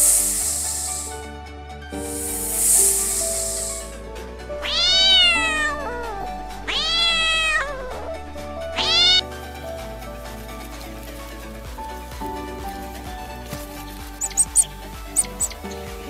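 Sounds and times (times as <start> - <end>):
soft background music: 0.0 - 16.0
kitten meowing: 4.6 - 8.2, 8.8 - 9.2, 14.2 - 15.7.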